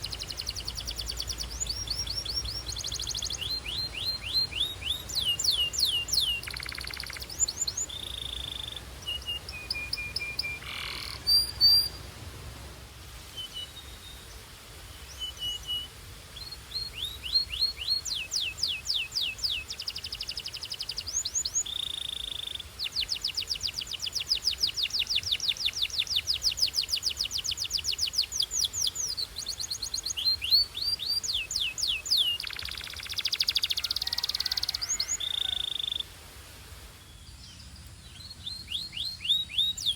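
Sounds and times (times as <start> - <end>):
canary singing trills: 0.0 - 12.0, 15.1 - 36.1, 37.3 - 39.9.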